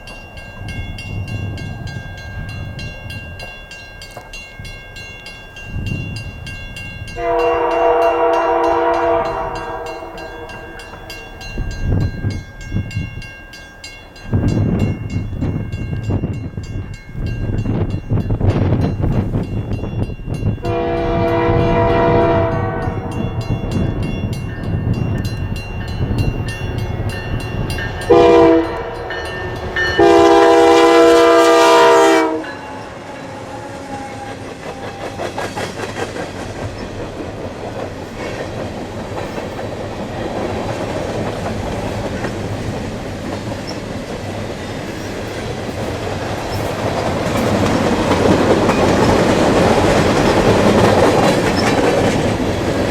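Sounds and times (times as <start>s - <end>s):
train engine and wheels running: 0.0s - 52.9s
locomotive air horn blasts: 7.2s - 10.8s, 20.6s - 23.2s, 28.1s - 29.2s, 29.9s - 32.7s
rail clatter: 33.0s - 52.9s.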